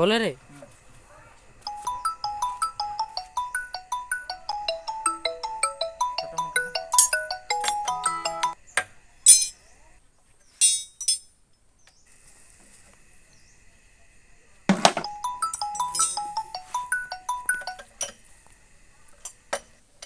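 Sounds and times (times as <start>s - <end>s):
phone ringtone melody: 1.7s - 8.6s, 14.8s - 17.9s
metallic clinks of tools: 6.9s - 8.0s, 9.3s - 9.6s, 10.6s - 11.3s, 15.5s - 16.4s.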